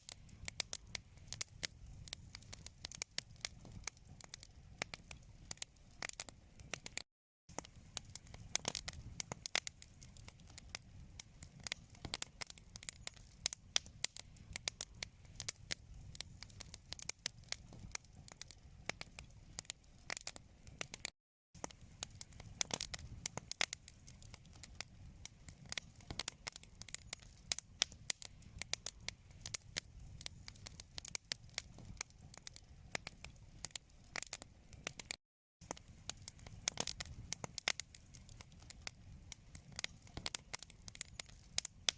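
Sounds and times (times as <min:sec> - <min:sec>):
wood fire crackling: 0:00.0 - 0:41.9.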